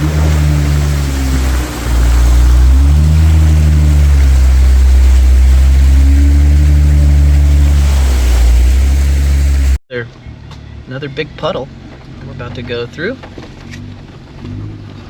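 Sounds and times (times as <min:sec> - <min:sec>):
loud steady rushing noise: 0:00.0 - 0:09.8
off-road vehicle engine revving: 0:00.0 - 0:15.0.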